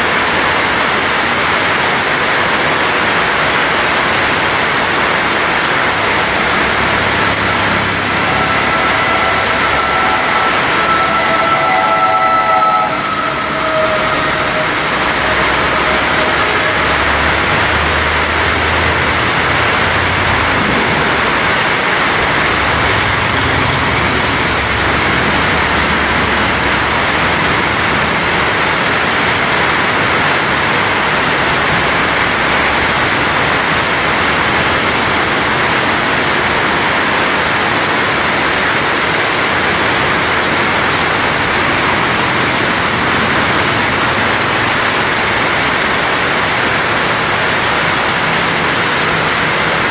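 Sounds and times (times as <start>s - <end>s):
heavy rain pouring: 0.0s - 49.9s
low rumble: 4.3s - 28.7s.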